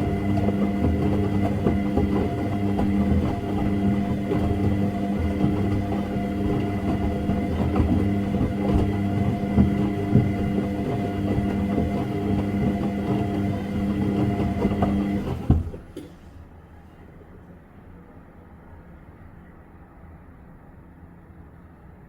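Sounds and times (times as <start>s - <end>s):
washing machine motor hum: 0.0s - 16.2s
washing machine thump: 14.6s - 16.1s.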